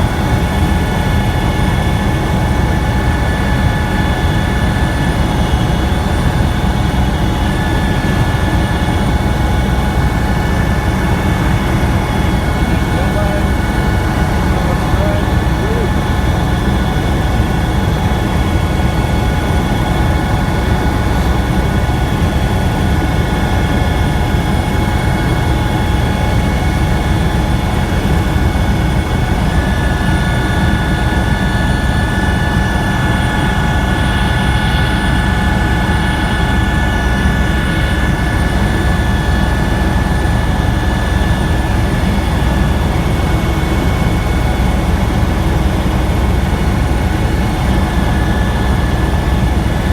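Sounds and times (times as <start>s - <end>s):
high whine: 0.0s - 21.9s
helicopter engine and rotor rumble: 0.0s - 49.9s.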